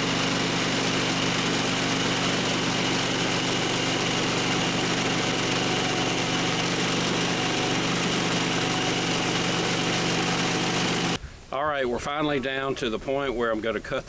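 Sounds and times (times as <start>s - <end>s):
gasoline engine running: 0.0s - 11.2s.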